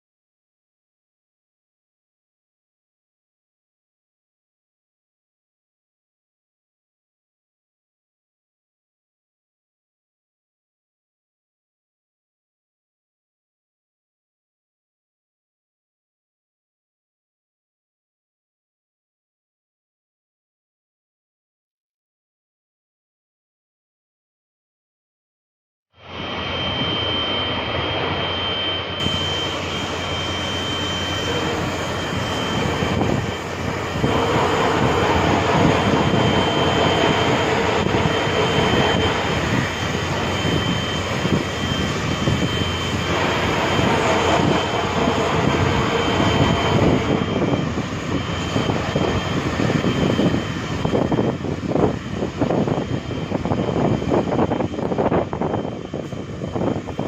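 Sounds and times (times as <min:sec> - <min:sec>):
hot-air welding gun blower whine: 0:26.0 - 0:57.0.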